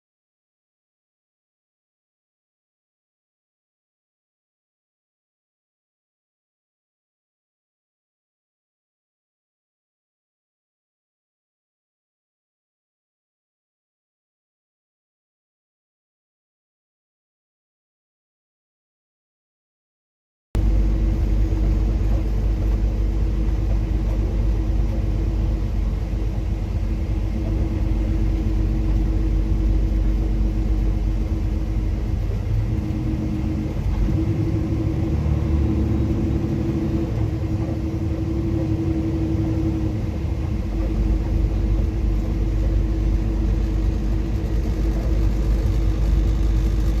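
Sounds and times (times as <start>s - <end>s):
vehicle engine droning: 20.6s - 47.0s.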